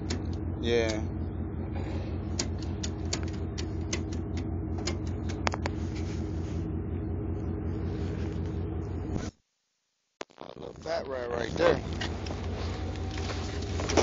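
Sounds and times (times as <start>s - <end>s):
vehicle engine idling: 0.0s - 9.3s, 10.8s - 14.0s
sharp clicks: 2.3s - 5.7s.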